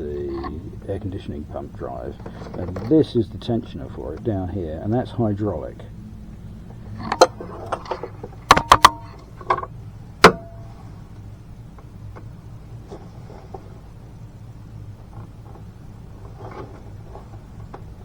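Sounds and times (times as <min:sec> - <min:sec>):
steady low hum: 0:00.0 - 0:18.0
metal tools knocking on engine parts: 0:06.4 - 0:10.8.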